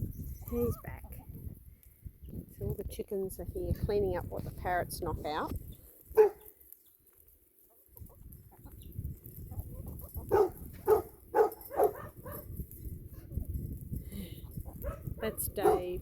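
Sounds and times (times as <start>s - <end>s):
chickens clucking: 7.6s - 12.3s, 14.4s - 15.8s.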